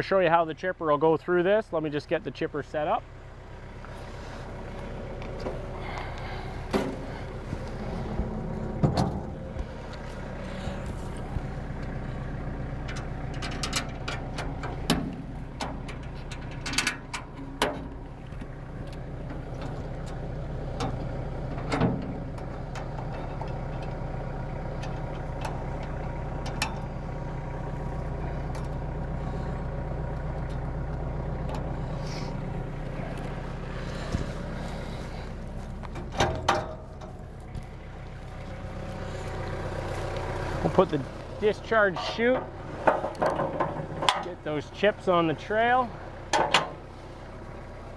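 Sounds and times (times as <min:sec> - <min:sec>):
tractor engine idling: 0:00.0 - 0:47.9
metallic clanks and knocks: 0:06.7 - 0:09.7, 0:12.9 - 0:18.1, 0:35.9 - 0:37.8, 0:41.9 - 0:44.4, 0:46.3 - 0:46.8.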